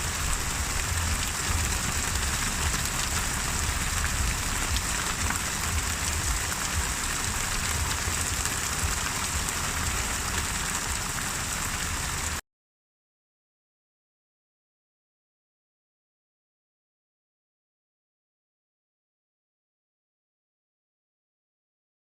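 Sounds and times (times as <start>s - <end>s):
gentle rain falling: 0.0s - 12.4s
low rumble: 0.0s - 12.4s.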